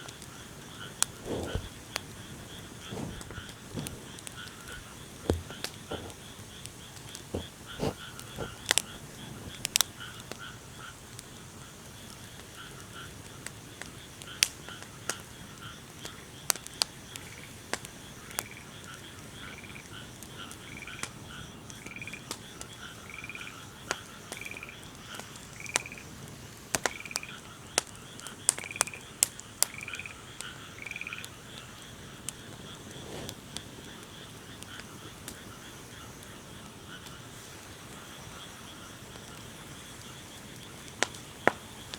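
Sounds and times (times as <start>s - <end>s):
wood fire crackling: 0.0s - 41.9s
frog croaking: 0.7s - 11.0s, 18.4s - 23.7s, 24.3s - 24.8s, 25.6s - 26.1s, 26.9s - 27.5s, 29.6s - 31.4s
pulsing chorus of night calls: 18.1s - 26.2s, 26.8s - 41.9s.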